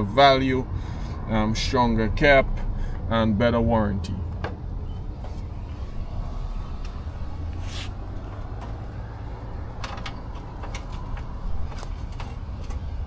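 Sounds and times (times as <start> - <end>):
low rumble: 4.0 - 13.0.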